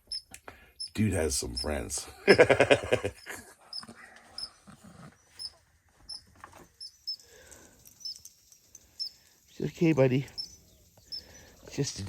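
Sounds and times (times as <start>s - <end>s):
rodent alarm chirps: 0.0s - 1.8s, 6.8s - 7.2s, 8.0s - 8.2s, 9.0s - 11.4s.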